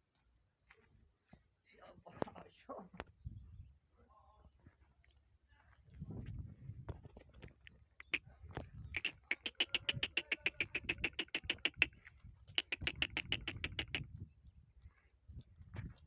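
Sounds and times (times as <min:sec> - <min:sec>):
donkey braying: 0:09.0 - 0:12.0, 0:12.6 - 0:14.0.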